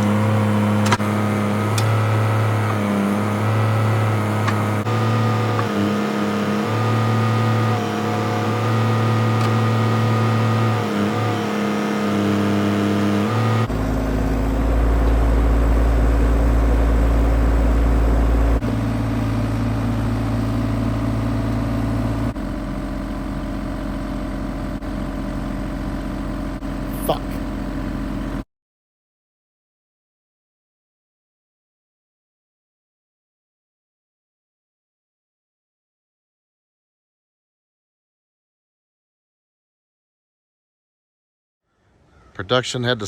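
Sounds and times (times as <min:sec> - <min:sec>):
excavator diesel engine under load: 0:00.0 - 0:28.4.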